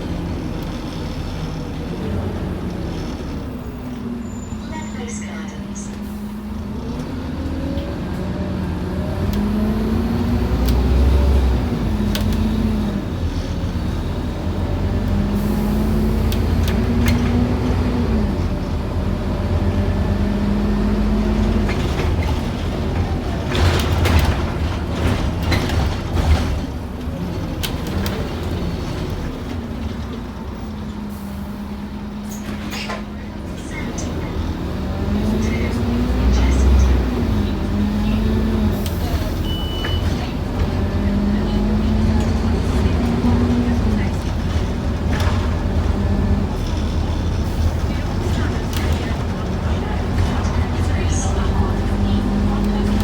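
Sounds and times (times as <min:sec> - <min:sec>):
bus diesel engine accelerating: 0:00.0 - 0:53.0
knocks and rattles: 0:21.4 - 0:30.2.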